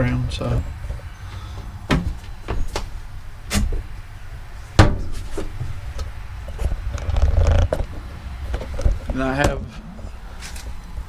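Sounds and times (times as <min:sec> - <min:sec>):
sharp knocks and clunks: 0:01.9 - 0:02.9, 0:04.8 - 0:05.8.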